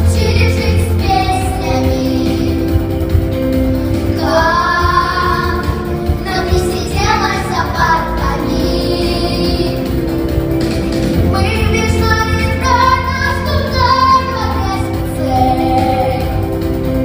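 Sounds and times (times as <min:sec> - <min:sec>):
child singing: 0:00.0 - 0:02.8, 0:04.2 - 0:09.8, 0:11.3 - 0:16.4
instrumental backing track: 0:00.0 - 0:17.0.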